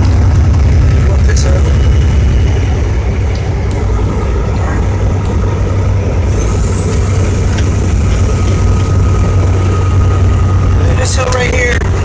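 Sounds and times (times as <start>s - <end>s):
road noise: 0.0s - 12.0s
truck engine rumbling: 0.0s - 12.0s
faint high whine: 0.6s - 12.0s.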